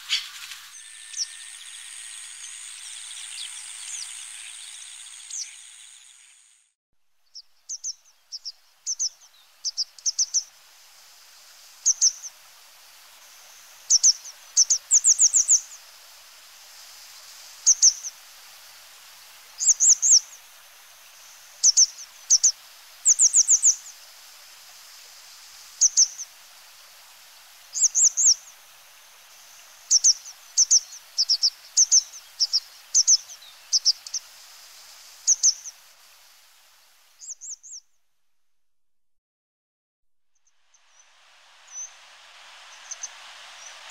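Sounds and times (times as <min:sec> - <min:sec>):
small bird chirping: 0:00.0 - 0:06.6, 0:07.2 - 0:10.5, 0:11.8 - 0:12.4, 0:13.9 - 0:15.8, 0:17.6 - 0:18.2, 0:19.6 - 0:20.4, 0:21.6 - 0:24.0, 0:25.8 - 0:26.3, 0:27.7 - 0:28.6, 0:29.8 - 0:34.3, 0:35.2 - 0:35.8, 0:37.2 - 0:38.0, 0:42.7 - 0:43.9
steady hiss: 0:00.0 - 0:37.8, 0:40.5 - 0:43.9.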